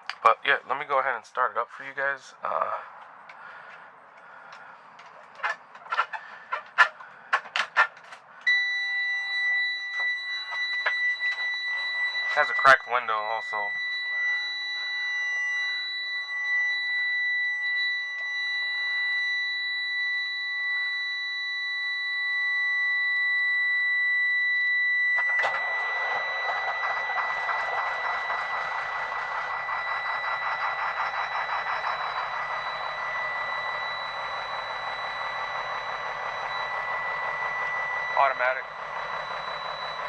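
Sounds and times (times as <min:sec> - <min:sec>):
warning buzzer high tone: 0:08.5 - 0:40.0
diesel engine starting and running: 0:25.2 - 0:40.0.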